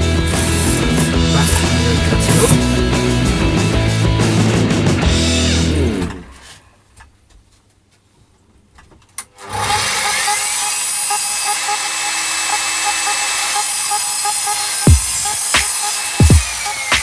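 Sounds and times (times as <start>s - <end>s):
electric mitre saw cutting wood: 0.0s - 3.5s, 5.3s - 6.6s, 9.3s - 17.0s.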